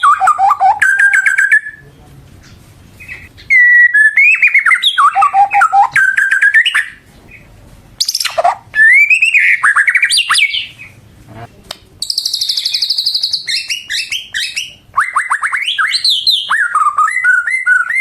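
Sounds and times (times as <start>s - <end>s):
bird singing whistled phrases: 0.0s - 1.8s, 3.4s - 7.0s, 8.0s - 10.8s, 12.0s - 18.0s.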